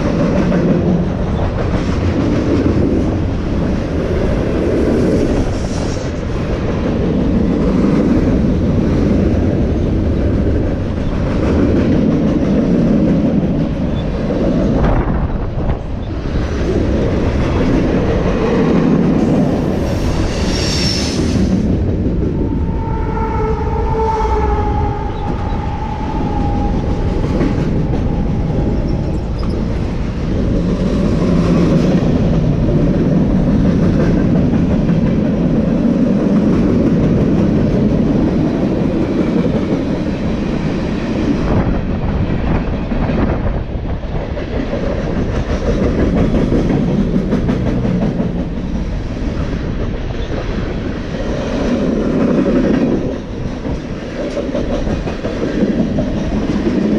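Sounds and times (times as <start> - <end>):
freight train rumbling past: 0.0 - 56.9
train horn: 22.6 - 25.6.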